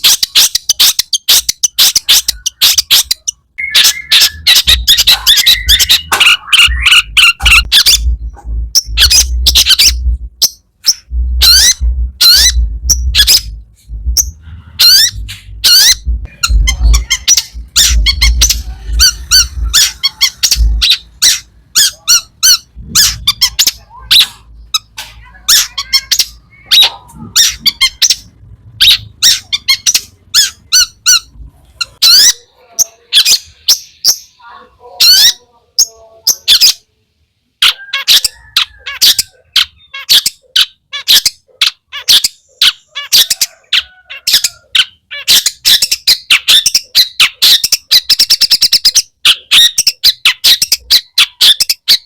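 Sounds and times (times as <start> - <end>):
shrike singing: 0.0 - 36.9
low hum: 3.8 - 32.0.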